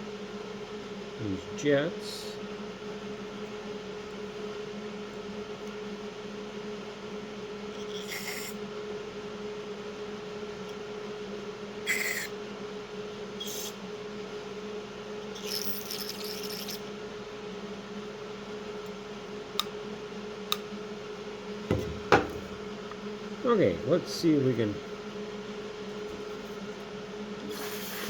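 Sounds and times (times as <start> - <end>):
steady low hum: 16.8 - 28.0.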